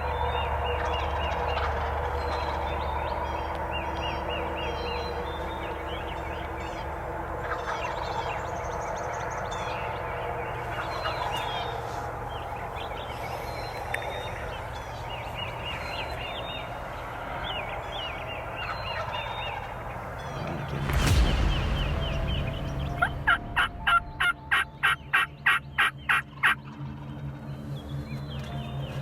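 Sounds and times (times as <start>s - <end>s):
wild turkeys gobbling: 23.9s - 26.6s.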